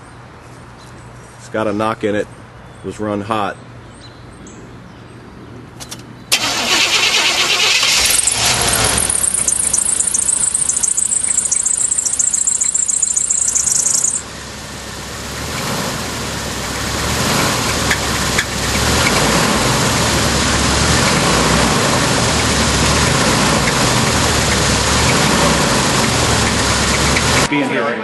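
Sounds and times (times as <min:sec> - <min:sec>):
high-pitched squeal: 0:06.3 - 0:14.2
engine running: 0:06.3 - 0:27.5.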